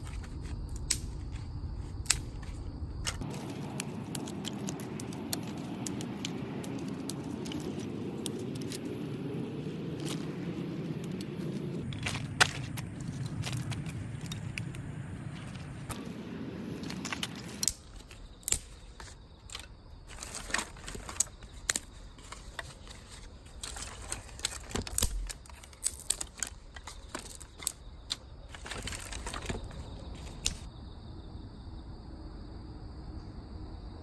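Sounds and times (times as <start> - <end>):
objects being handled: 0.0 - 30.7.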